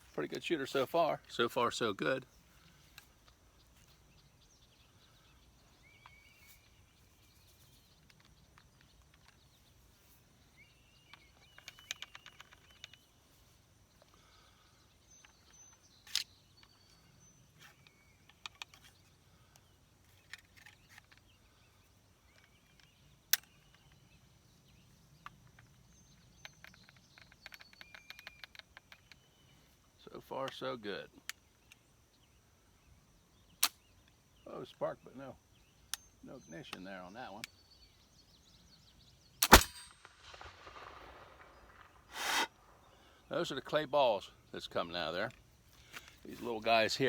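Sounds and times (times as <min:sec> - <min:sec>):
birds chirping: 0:00.0 - 0:47.0
sharp clicks: 0:39.4 - 0:42.5.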